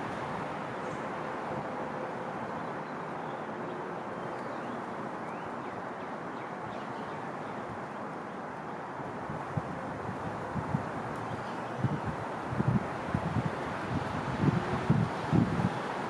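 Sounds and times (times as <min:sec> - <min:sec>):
rushing background noise: 0:00.0 - 0:16.0.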